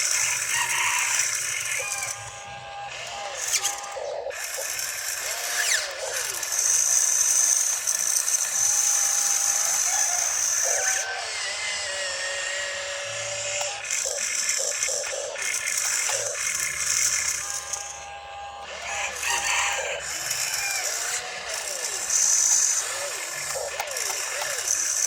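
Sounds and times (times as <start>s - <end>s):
steady high whine: 0.0s - 25.0s
toy electric motors whirring: 0.0s - 25.0s.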